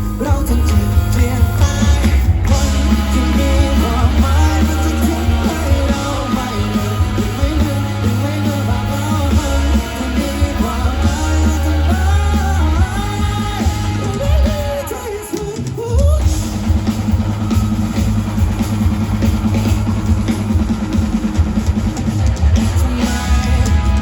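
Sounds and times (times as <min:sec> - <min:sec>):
lead vocalist singing: 0:00.0 - 0:17.0
live rock band playing: 0:00.0 - 0:24.0.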